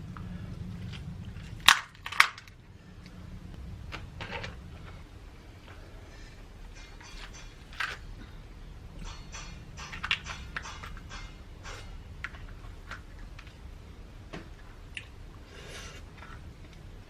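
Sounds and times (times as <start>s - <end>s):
low steady hum: 0.0s - 17.0s
clicks of eating and handling food: 14.3s - 15.2s.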